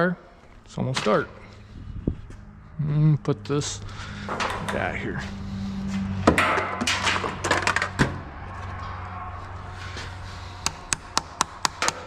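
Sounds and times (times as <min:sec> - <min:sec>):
steady low hum: 0:00.2 - 0:12.0
sharp knocks and clatter: 0:04.2 - 0:04.9, 0:06.2 - 0:09.0.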